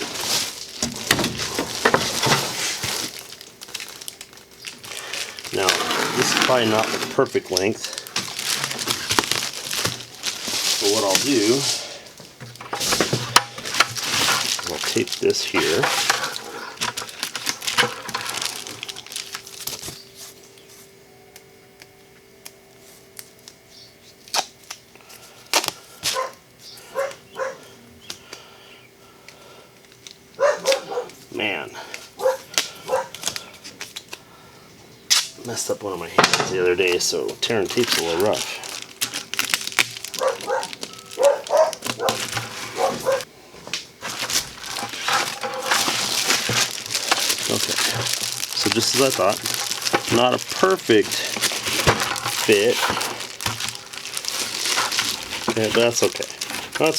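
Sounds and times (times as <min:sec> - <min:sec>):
foil insulation crinkling: 0:00.0 - 0:21.1, 0:21.8 - 0:28.5, 0:29.3 - 0:34.5, 0:35.1 - 0:56.9
tape pulled off a roll: 0:05.6 - 0:15.0
dog barking: 0:26.1 - 0:27.7, 0:30.4 - 0:31.2, 0:32.2 - 0:33.1, 0:40.2 - 0:43.2.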